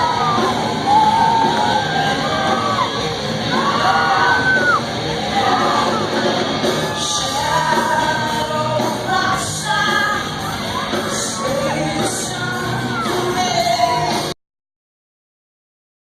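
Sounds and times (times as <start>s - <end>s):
live band playing: 0.0s - 14.3s
woman singing: 6.8s - 14.4s.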